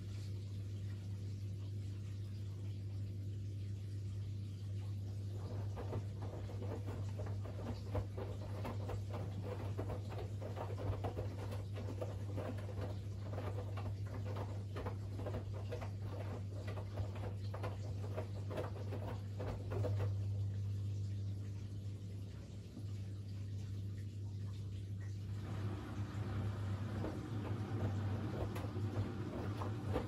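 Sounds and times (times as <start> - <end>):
laundry and water tumbling: 4.7 - 30.0
washing machine drum turning: 5.4 - 20.4, 25.4 - 30.0.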